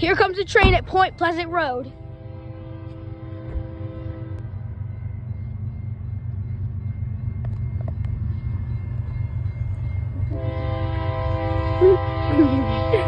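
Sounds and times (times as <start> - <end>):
diesel freight train rumble: 0.0 - 13.0
locomotive horn blast: 1.9 - 4.4, 10.3 - 13.0.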